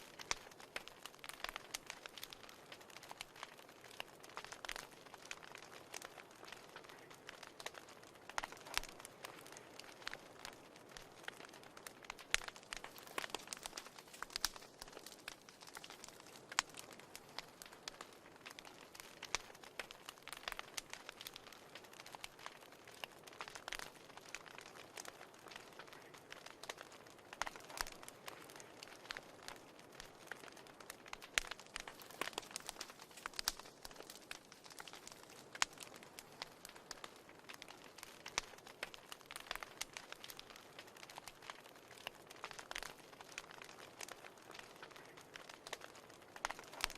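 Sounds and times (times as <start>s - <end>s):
fire crackling in fireplace: 0.0s - 46.9s.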